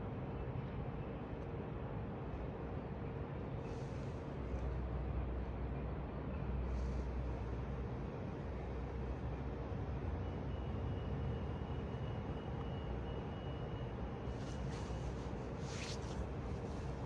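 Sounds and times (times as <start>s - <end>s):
faint high whine: 6.3s - 17.0s.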